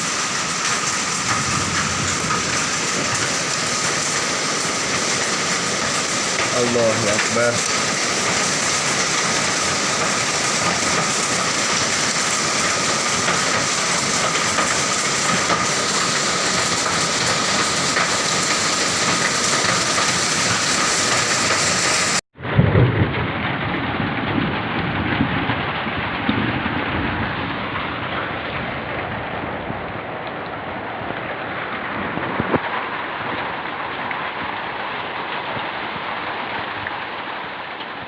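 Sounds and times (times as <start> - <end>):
hail and heavy rain: 0.0 - 38.0
deep rumble: 1.2 - 6.8, 22.4 - 34.2.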